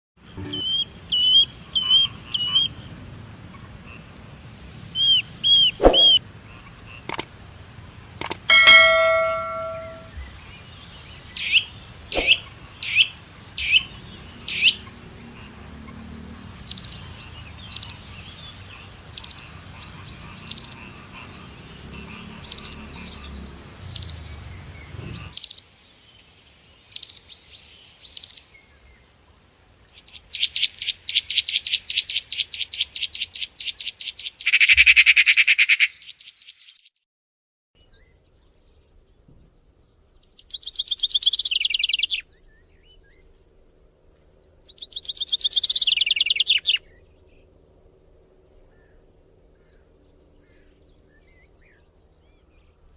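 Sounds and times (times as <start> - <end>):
songbirds calling and chirping: 0.2 - 37.0, 37.8 - 52.9
fast pulsing bird trill: 8.2 - 10.1
brief ringing tone: 8.5 - 10.1.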